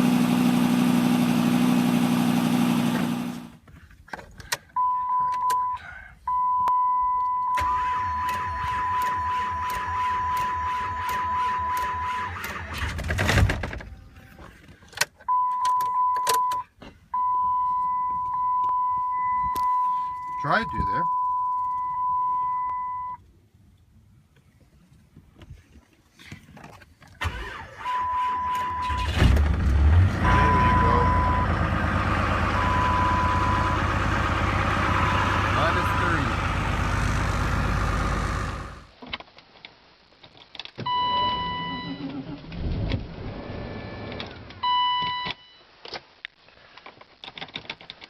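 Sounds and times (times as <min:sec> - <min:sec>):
engine running: 0:00.0 - 0:03.6, 0:28.8 - 0:38.9
electronic warning beep: 0:04.8 - 0:12.0, 0:15.3 - 0:23.2, 0:30.2 - 0:31.6, 0:32.5 - 0:33.8
high electronic beep: 0:17.2 - 0:23.2, 0:30.2 - 0:31.6, 0:32.6 - 0:33.8.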